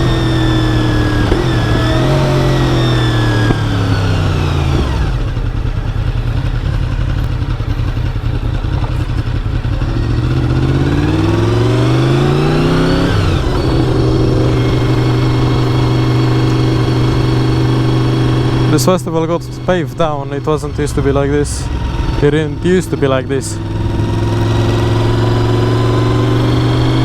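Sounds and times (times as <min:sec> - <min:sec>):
motorcycle engine while riding: 0:00.0 - 0:27.0.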